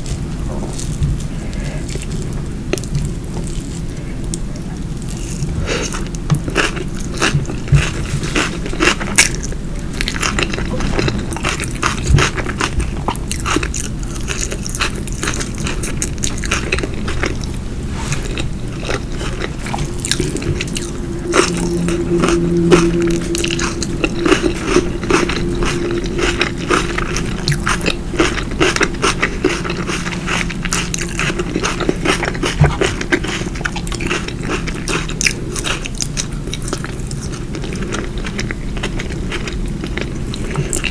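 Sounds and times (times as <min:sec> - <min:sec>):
person chewing crunchy food: 0:00.0 - 0:40.9
short low hum: 0:16.8 - 0:35.6.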